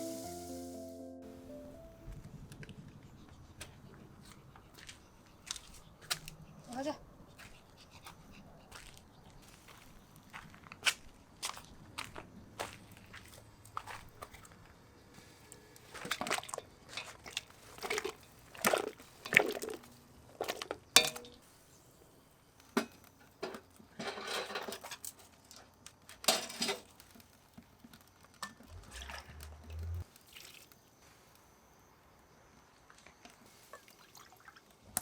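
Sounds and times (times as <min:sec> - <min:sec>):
low hum: 0:28.7 - 0:30.0
liquid splashing: 0:28.7 - 0:30.7.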